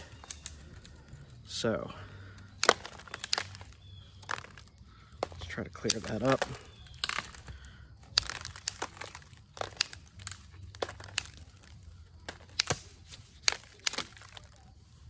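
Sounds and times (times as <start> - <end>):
stone knapping clicks and crackles: 0.0 - 15.0.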